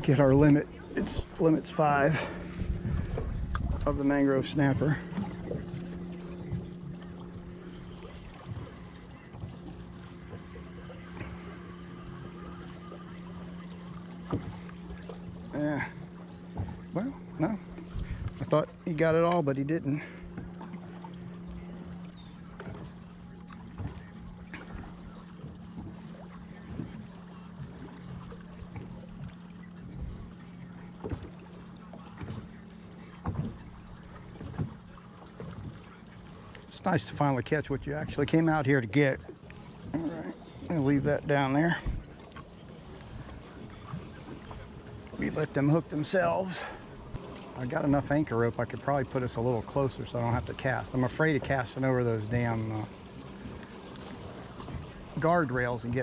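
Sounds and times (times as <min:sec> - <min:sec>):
steady low hum: 0:00.0 - 0:56.0
water lapping against hull: 0:00.0 - 0:56.0
small motor humming: 0:04.8 - 0:18.8.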